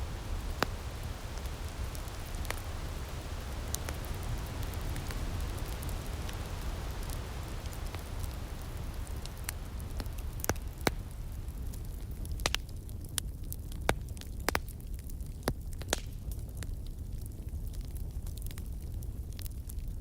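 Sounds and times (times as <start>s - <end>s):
soft hiss: 0.0s - 13.2s
low steady rumble: 0.0s - 13.6s
fire pops: 0.0s - 20.0s
wood fire crackling: 0.0s - 20.0s.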